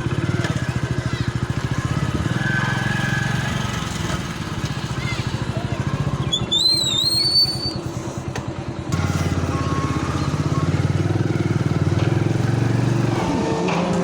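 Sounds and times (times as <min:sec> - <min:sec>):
concrete mixer engine pulsing: 0:00.0 - 0:14.0
high wavering whistle: 0:06.4 - 0:07.9.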